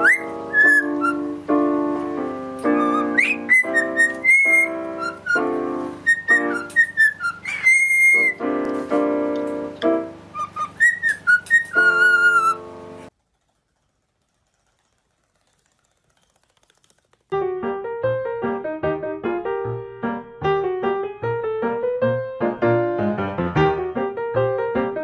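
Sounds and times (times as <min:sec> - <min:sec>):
cockatiel whistling: 0:00.0 - 0:01.4, 0:02.6 - 0:08.5, 0:10.3 - 0:12.7
keyboard piano chords: 0:00.0 - 0:13.1, 0:17.3 - 0:25.0.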